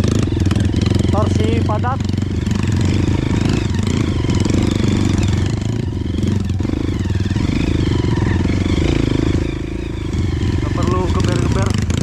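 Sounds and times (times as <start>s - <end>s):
motorbike engine pulling uphill: 0.0s - 12.0s.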